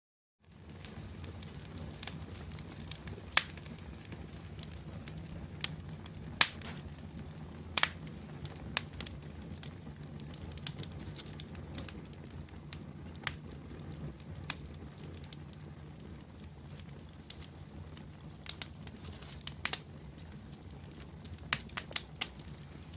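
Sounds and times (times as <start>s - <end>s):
fire crackling and popping: 0.4s - 22.9s
flames rushing: 0.4s - 22.9s.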